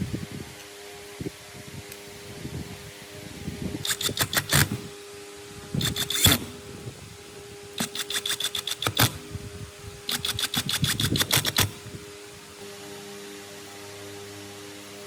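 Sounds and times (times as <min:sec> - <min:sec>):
motor hum: 0:02.0 - 0:15.0
chisel clattering strokes: 0:07.8 - 0:09.2, 0:10.1 - 0:11.8.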